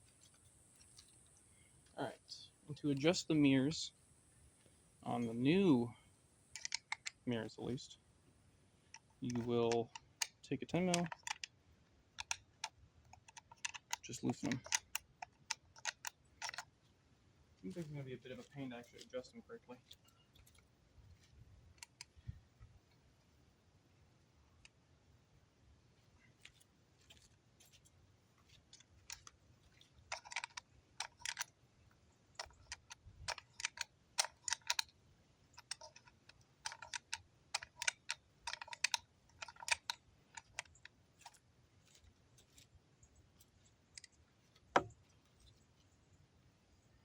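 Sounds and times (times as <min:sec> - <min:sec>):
mirror mount clicking and clacking: 0:32.4 - 0:34.9, 0:35.5 - 0:41.4.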